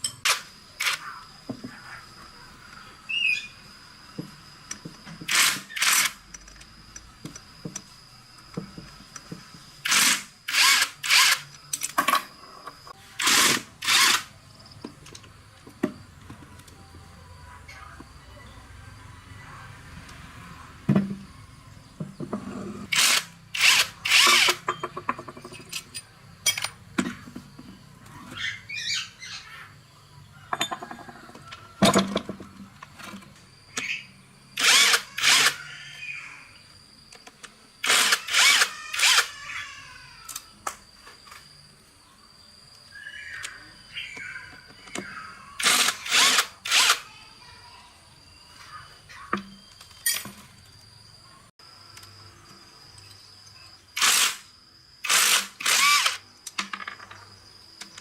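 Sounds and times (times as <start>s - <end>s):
hand power tool bursts: 5.2s - 6.2s, 9.8s - 11.5s, 13.2s - 14.3s, 22.9s - 24.8s, 34.6s - 35.6s, 37.8s - 39.4s, 45.6s - 47.0s, 54.0s - 56.2s.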